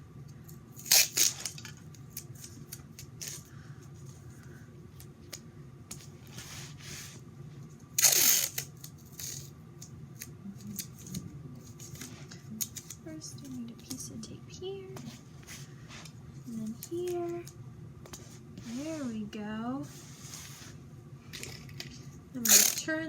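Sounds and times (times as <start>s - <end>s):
tape ripping off roll: 0.8s - 1.8s, 8.0s - 9.5s.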